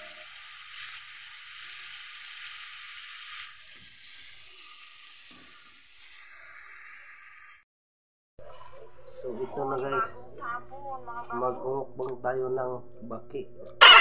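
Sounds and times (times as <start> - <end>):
frying in hot oil sizzle: 0.0 - 7.6, 13.8 - 14.0.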